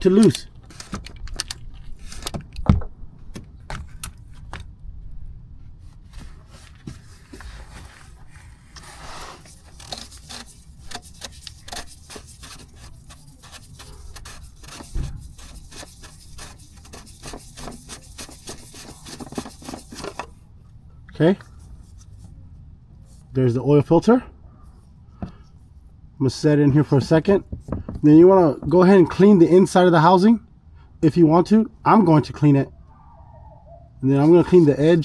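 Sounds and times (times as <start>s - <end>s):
scraping: 5.8s - 20.4s
dull knock: 27.4s - 28.0s.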